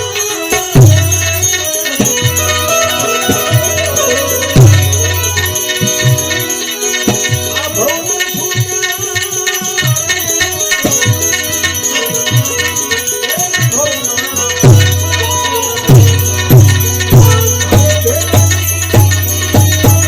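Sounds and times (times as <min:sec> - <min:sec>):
jingling percussion: 0:00.0 - 0:20.0
held drone: 0:00.2 - 0:08.1.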